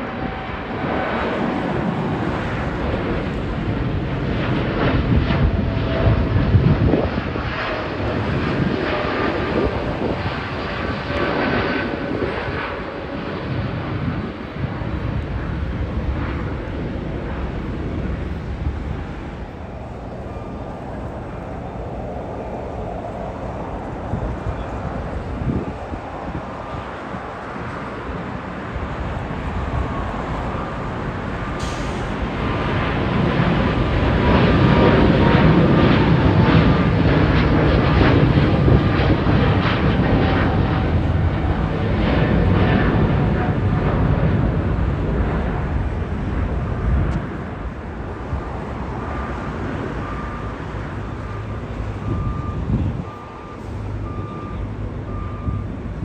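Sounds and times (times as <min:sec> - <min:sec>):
faint steady jet noise: 0:00.0 - 0:56.0
jet engines at takeoff: 0:00.0 - 0:56.0.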